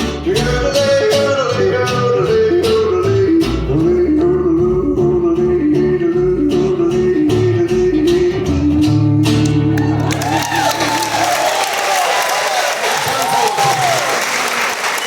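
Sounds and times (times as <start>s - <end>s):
acoustic guitar strumming: 0.0s - 11.1s.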